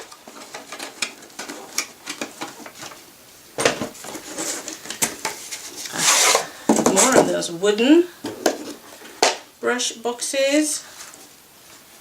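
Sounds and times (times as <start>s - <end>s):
wooden boxes being handled: 0.0s - 7.4s.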